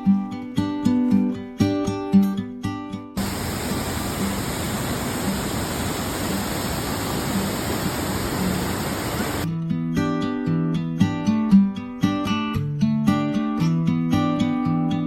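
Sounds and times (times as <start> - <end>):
acoustic guitar music: 0.0 - 3.2, 9.5 - 15.0
rushing falling water: 3.2 - 9.5.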